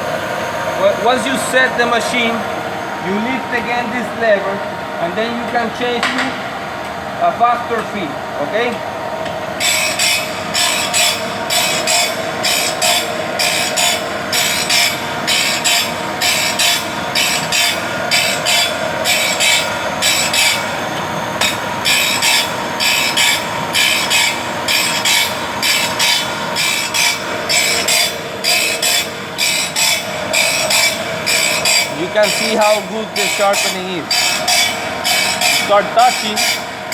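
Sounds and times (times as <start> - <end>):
motor hum: 0.0 - 36.9
grinding wheel scraping saw teeth: 9.6 - 36.9.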